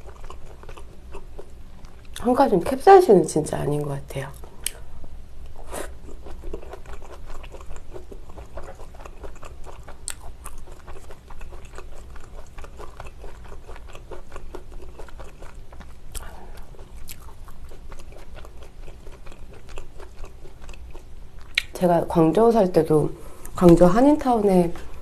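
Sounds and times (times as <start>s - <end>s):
close chewing with wet mouth sounds: 0.0s - 2.4s, 5.6s - 21.8s.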